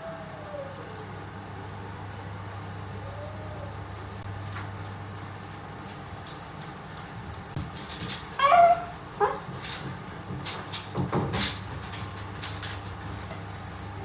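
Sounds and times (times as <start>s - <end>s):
puppy whimpering: 8.4s - 9.5s.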